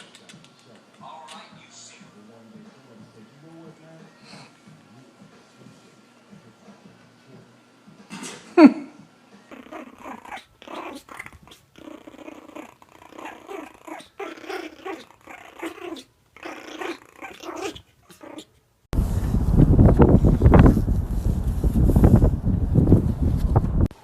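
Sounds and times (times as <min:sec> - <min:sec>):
dog growling and grumbling: 0:09.5 - 0:18.6.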